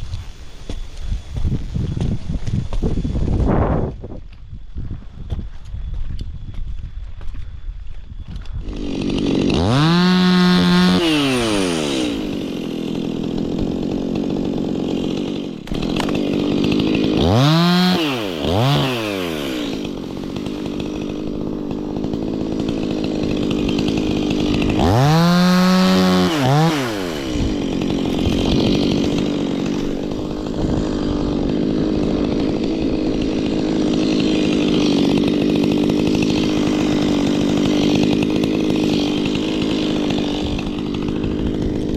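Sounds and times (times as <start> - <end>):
chainsaw running and revving: 8.3 - 41.9.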